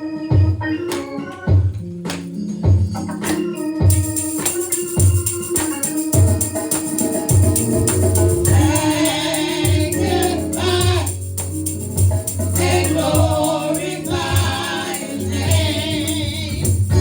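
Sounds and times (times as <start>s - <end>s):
organ: 0.0s - 17.0s
jingling hand percussion: 0.8s - 17.0s
voices singing: 4.3s - 17.0s
bass beat: 7.3s - 17.0s.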